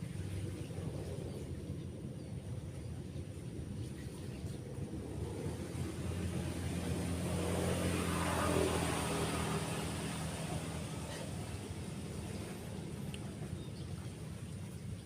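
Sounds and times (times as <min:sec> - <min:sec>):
waves breaking: 0:03.7 - 0:15.0
vehicle passing by: 0:03.9 - 0:15.0.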